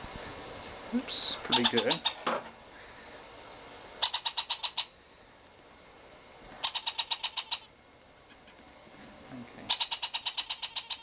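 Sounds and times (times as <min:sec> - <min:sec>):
parrot chick squeaking: 0:01.4 - 0:02.3, 0:04.0 - 0:05.0, 0:06.6 - 0:07.7, 0:09.7 - 0:11.0.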